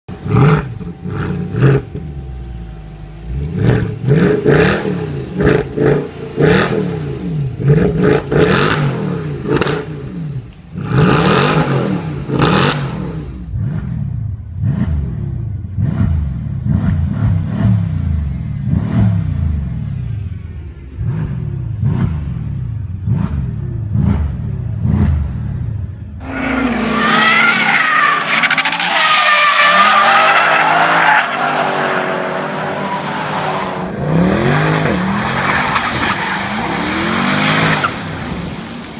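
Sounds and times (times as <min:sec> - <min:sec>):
car engine revving: 0:00.0 - 0:38.9
tyres squealing: 0:26.2 - 0:34.0
exhaust cracks: 0:26.2 - 0:38.9.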